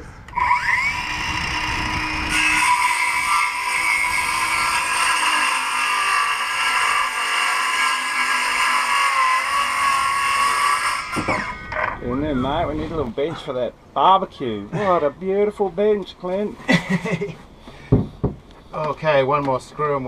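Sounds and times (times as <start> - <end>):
power tool motor whining: 0.3 - 12.0.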